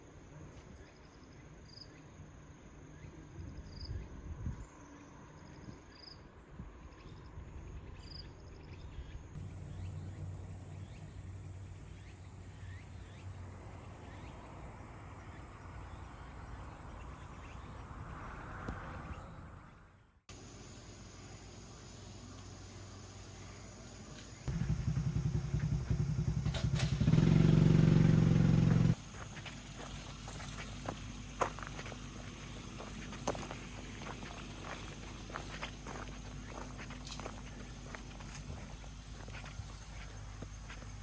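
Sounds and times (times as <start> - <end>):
insects chirping: 0.0 - 19.7, 20.3 - 41.0
steady low hum: 20.4 - 41.0.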